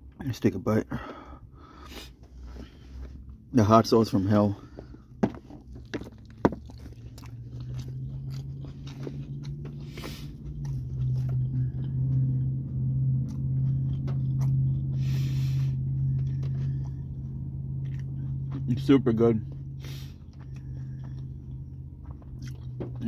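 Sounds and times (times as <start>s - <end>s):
steady low hum: 0.0s - 23.0s
person chewing with mouth clicks: 5.6s - 18.9s, 19.5s - 23.0s
sniffs through nose: 9.8s - 10.4s, 15.0s - 15.8s, 19.8s - 20.3s.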